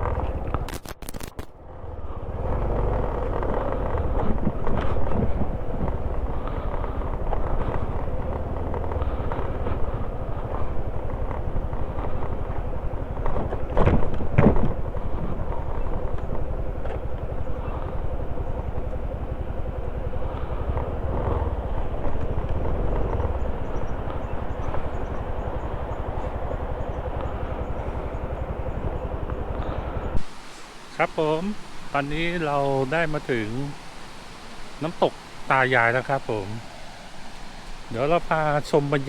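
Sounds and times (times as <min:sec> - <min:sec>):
motorcycle engine rumble: 0:00.0 - 0:39.0
wind on microphone: 0:01.9 - 0:39.0.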